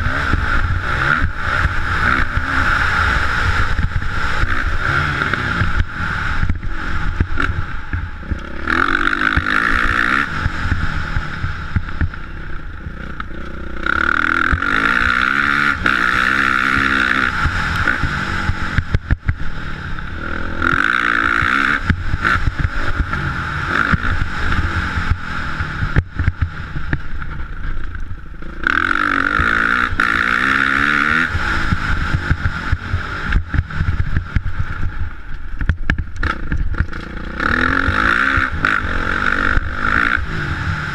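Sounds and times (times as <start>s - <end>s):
low rumble: 0.0s - 30.6s
motocross bike engine revving: 0.0s - 40.9s.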